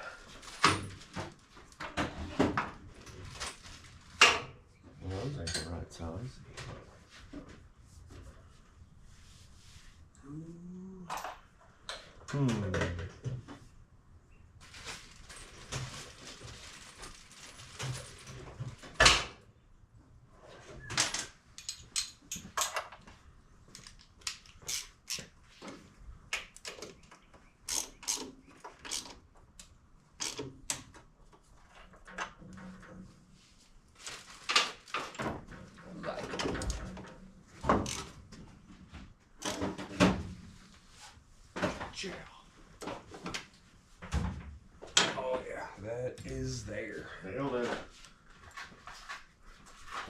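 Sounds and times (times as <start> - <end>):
rustling: 14.6 - 18.8, 33.2 - 36.2
metal tools clinking: 21.6 - 22.9.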